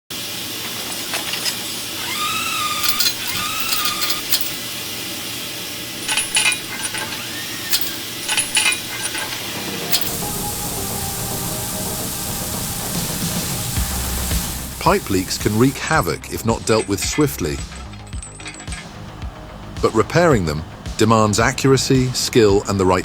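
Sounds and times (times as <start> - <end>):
hiss of leaking pipe: 0.2 - 16.0
metallic clicks and clanks: 0.6 - 4.7, 6.0 - 10.3, 14.8 - 23.0
short squealing tones: 2.0 - 4.5, 6.9 - 8.2.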